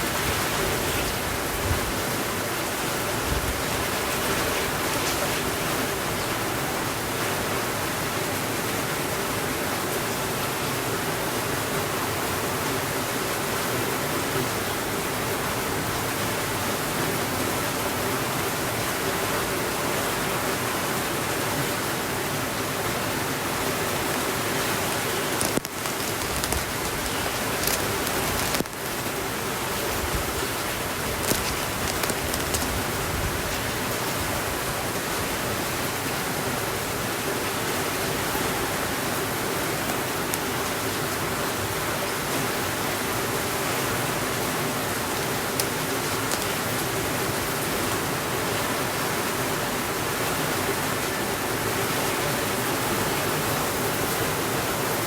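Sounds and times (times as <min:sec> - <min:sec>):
steady rainfall: 0:00.0 - 0:55.0
faint clicks: 0:25.3 - 0:29.0, 0:31.1 - 0:32.8, 0:45.6 - 0:46.6.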